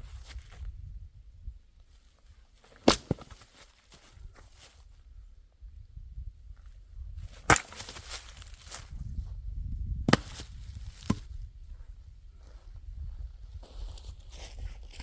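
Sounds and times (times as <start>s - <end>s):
axe strikes splitting a log: 2.8s - 3.4s, 7.4s - 8.2s, 10.1s - 11.3s
wood crackling: 7.4s - 8.9s.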